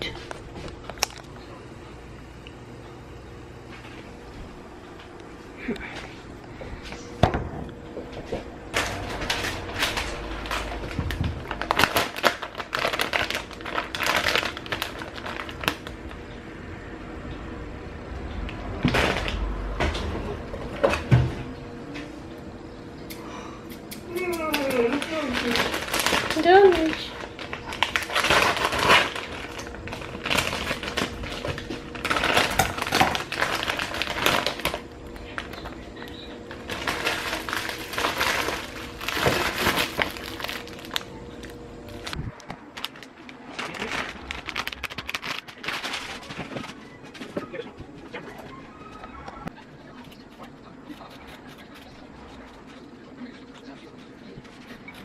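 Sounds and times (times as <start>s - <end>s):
hands clicking and rustling: 23.1s - 27.0s.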